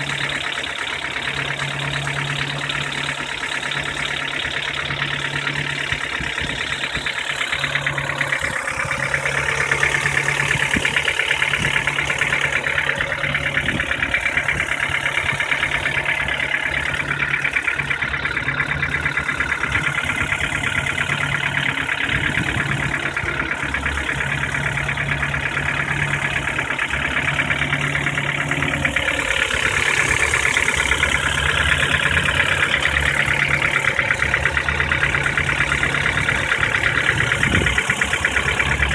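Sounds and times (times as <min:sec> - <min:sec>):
car engine idling: 0:00.0 - 0:38.9
rapid engine knock ticking: 0:00.0 - 0:38.9.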